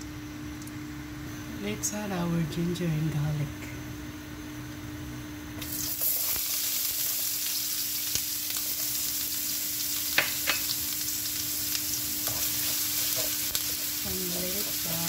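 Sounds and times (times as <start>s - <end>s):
garlic and ginger sizzling in oil: 5.6s - 15.0s.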